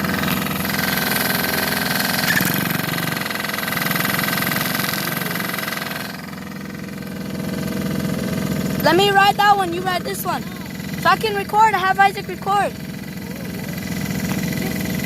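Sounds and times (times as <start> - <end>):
dirt bike engine idling: 0.0 - 15.0.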